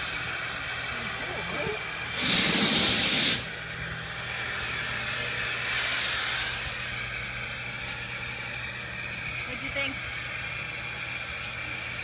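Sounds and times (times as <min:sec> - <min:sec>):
steam locomotive venting steam: 0:00.0 - 0:12.0.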